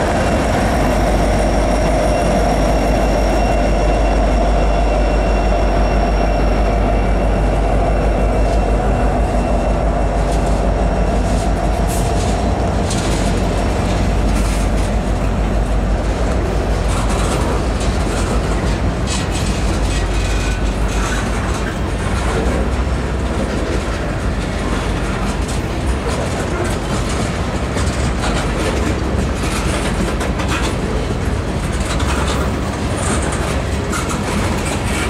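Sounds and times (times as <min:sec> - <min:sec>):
freight train rumbling past: 0:00.0 - 0:35.0
wheels clacking over rail joints: 0:00.0 - 0:35.0.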